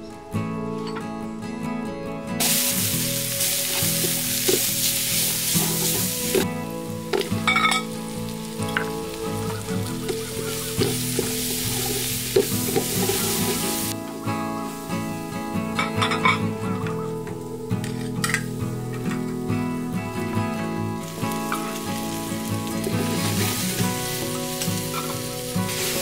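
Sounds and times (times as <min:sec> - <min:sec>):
soft guitar music: 0:00.0 - 0:26.0
shallots sizzling in hot oil: 0:02.4 - 0:16.9, 0:21.0 - 0:26.0.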